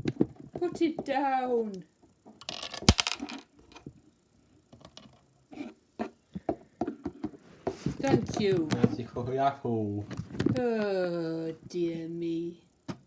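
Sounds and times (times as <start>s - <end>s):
toy pieces clicking and clattering: 2.4s - 3.5s.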